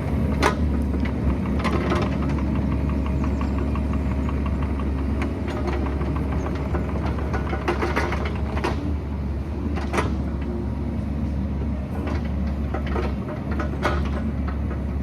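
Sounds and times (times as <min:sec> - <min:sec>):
excavator diesel engine running: 0:00.0 - 0:15.0
knocks and clanks: 0:05.2 - 0:09.0, 0:11.9 - 0:14.8.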